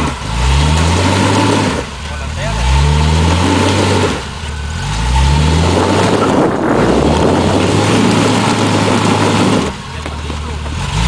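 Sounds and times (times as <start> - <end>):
vehicle engine revving: 0.0 - 11.0
loud rushing noise: 3.6 - 10.2.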